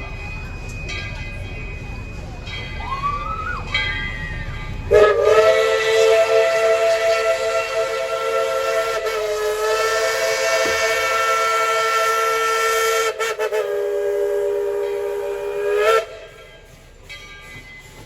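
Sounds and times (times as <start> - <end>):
steam whistle blowing a chord: 4.9 - 16.4.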